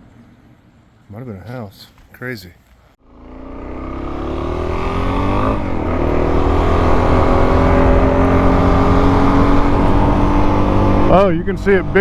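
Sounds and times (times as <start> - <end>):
dirt bike engine accelerating: 3.0 - 12.0.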